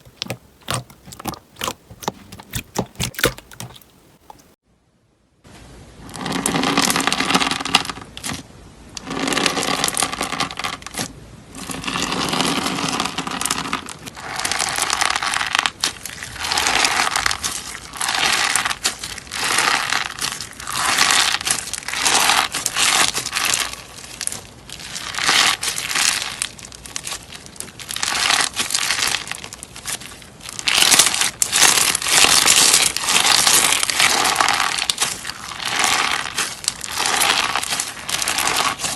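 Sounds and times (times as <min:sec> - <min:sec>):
slime squeezed crackling: 0:00.0 - 0:04.6, 0:14.2 - 0:38.9.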